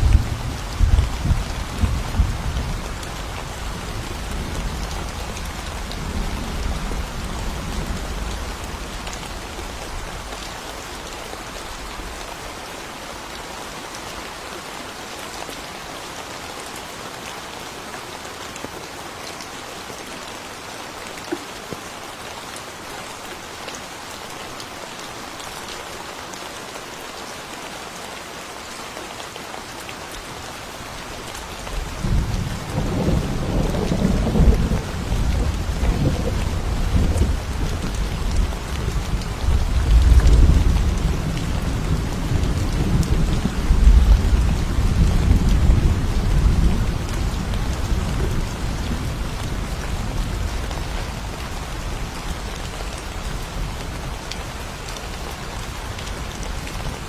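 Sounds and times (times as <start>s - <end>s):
low rumble of thunder: 0.0s - 10.6s, 31.8s - 52.5s
steady rain falling: 0.0s - 57.0s.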